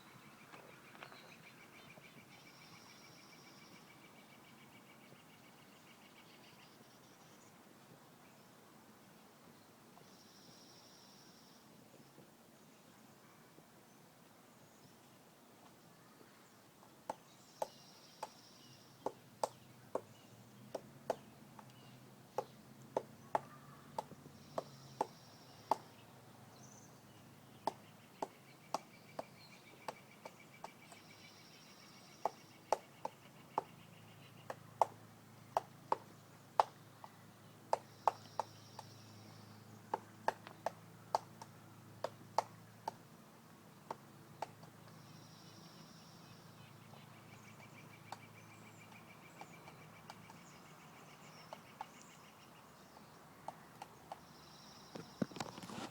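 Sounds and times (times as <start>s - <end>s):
woodpecker pecking: 16.7s - 26.1s, 27.1s - 45.9s, 46.8s - 55.9s.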